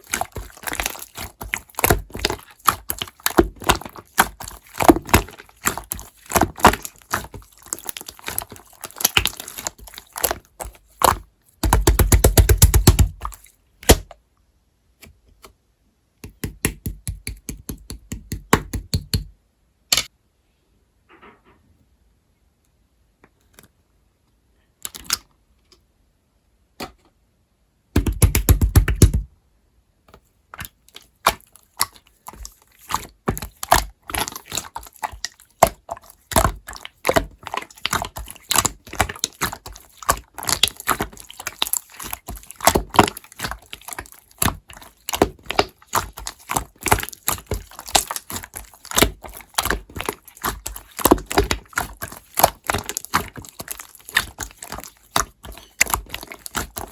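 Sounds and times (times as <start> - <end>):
slime clicking and popping: 0.0 - 14.1, 28.0 - 29.2, 30.6 - 56.9.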